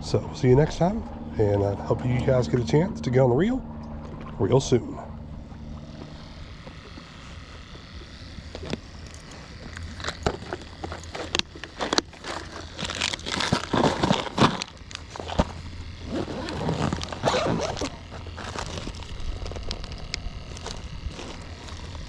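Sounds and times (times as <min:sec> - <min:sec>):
rustling and crinkling: 0:05.3 - 0:22.0.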